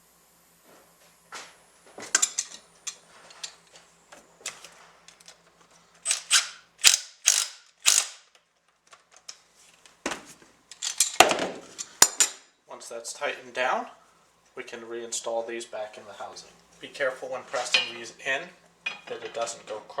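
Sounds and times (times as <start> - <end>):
ratchet wrench clicking: 6.0 - 8.2.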